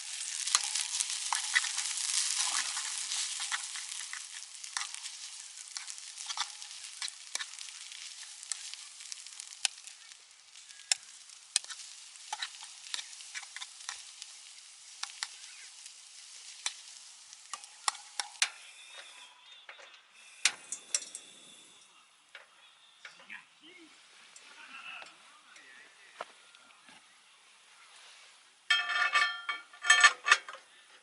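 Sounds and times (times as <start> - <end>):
food sizzling in a pan: 0.0 - 19.5, 20.1 - 29.9
metal utensil clicking on pan: 0.0 - 21.3.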